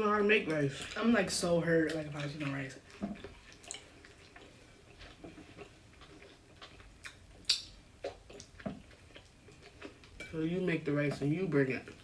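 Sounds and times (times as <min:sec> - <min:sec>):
mouth clicks and chewing: 0:01.8 - 0:10.2.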